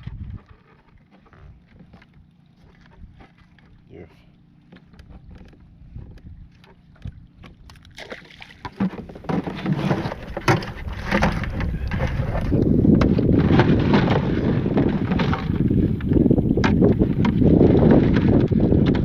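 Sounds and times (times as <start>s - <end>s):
wind buffeting microphone: 0.0s - 2.0s, 5.6s - 7.7s, 9.1s - 19.0s.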